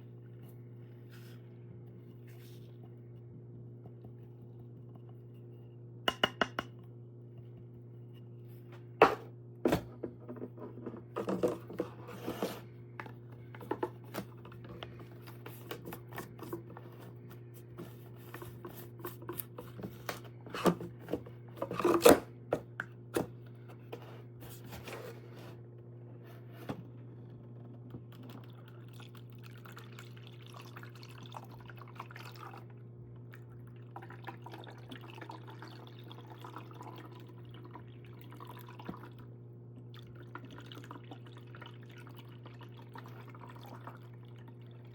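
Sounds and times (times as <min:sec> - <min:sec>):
steady low hum: 0:00.0 - 0:30.7.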